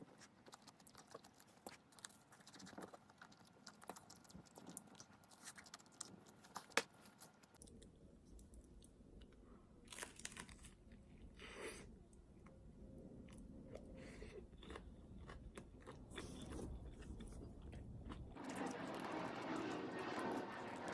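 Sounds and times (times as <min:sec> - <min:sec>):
crunchy bites and chewing: 0:09.8 - 0:10.9, 0:14.4 - 0:18.4.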